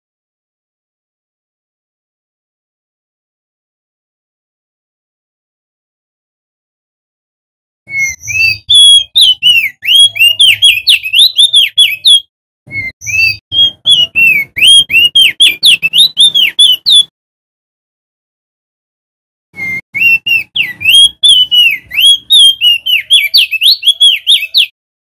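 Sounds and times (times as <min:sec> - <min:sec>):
bird whistling song: 0:07.9 - 0:17.1, 0:19.6 - 0:24.8.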